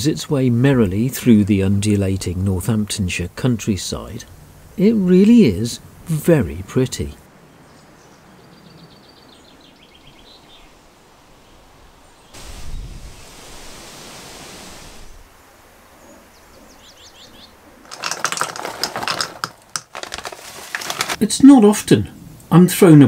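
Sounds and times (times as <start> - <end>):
rushing wind: 10.4 - 19.4
nuts clattering into wooden bowl: 17.9 - 21.2.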